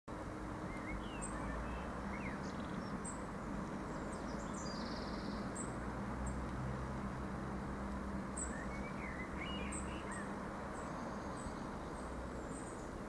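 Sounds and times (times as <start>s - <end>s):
small birds chirping: 0.2s - 13.0s.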